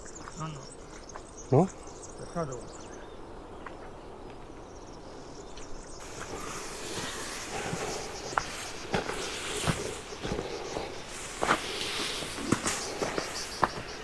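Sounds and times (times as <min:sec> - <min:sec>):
faint insects chirring: 0:05.9 - 0:14.0
footsteps on outdoor path: 0:06.0 - 0:14.0.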